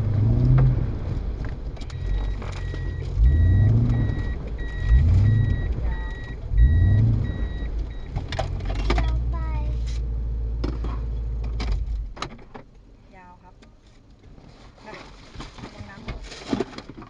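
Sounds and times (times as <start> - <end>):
car engine revving: 0.0 - 12.2
electronic warning beep: 1.9 - 8.2.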